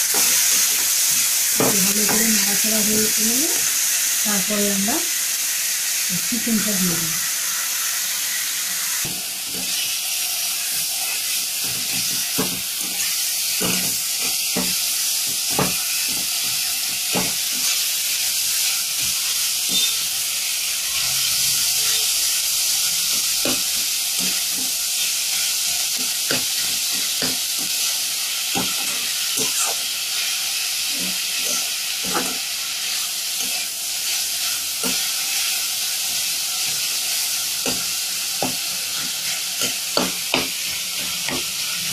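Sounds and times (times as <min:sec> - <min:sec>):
food sizzling in oil: 0:00.0 - 0:41.9
spatula scraping a pan: 0:15.4 - 0:20.2.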